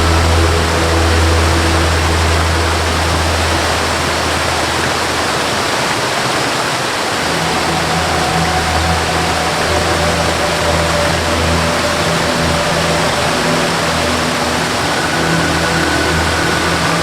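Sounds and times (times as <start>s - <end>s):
waterfall rushing: 0.0s - 17.0s
low held musical note: 7.3s - 17.0s.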